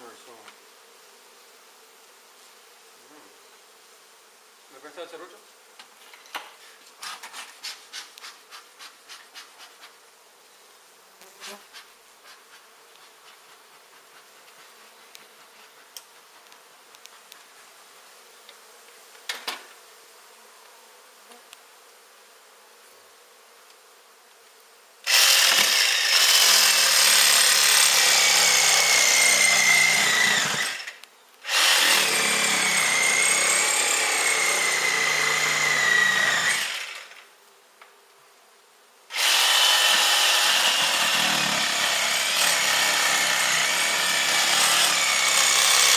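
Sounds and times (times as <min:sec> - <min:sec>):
honey bees buzzing: 0:00.0 - 0:45.9
power saw cutting: 0:25.1 - 0:37.2, 0:39.1 - 0:45.9.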